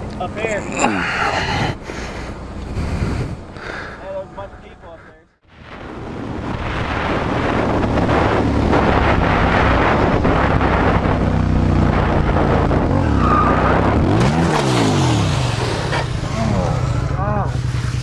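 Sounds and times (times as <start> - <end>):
wind rush: 2.7 - 3.6, 5.4 - 15.9
motorcycle engine at speed: 5.6 - 18.0
scraping and skidding on asphalt: 11.8 - 17.0.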